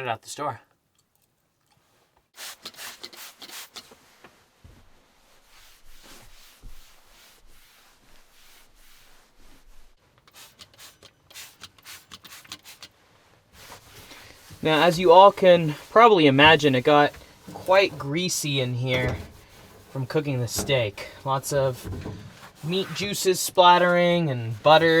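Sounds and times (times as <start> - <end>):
surface being scrubbed: 13.6 - 25.0.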